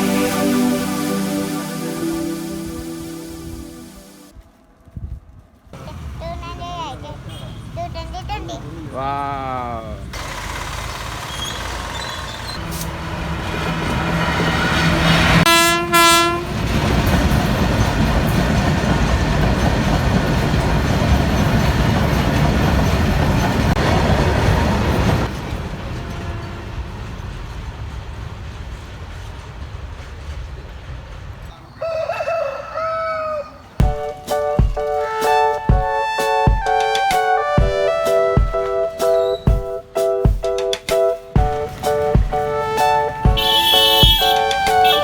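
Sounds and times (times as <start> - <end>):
train horn: 0.0 - 4.3, 12.6 - 16.7, 41.8 - 45.0
wavering pitched sound: 0.0 - 4.3
train cars rumbling and clattering: 4.7 - 31.6, 37.9 - 45.0.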